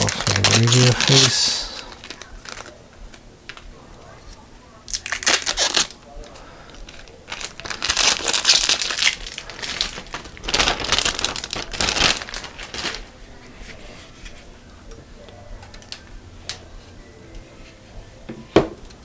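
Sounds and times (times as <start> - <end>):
plastic wrap tearing and crinkling: 0.0 - 2.8, 4.9 - 6.0, 6.8 - 14.4.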